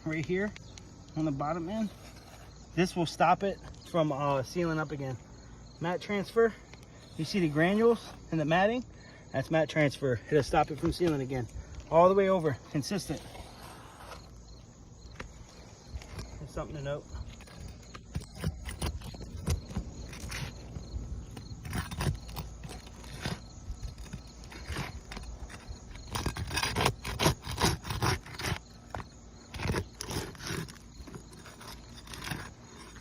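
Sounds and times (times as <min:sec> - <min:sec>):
scraping on roof shingles: 0:15.0 - 0:33.0.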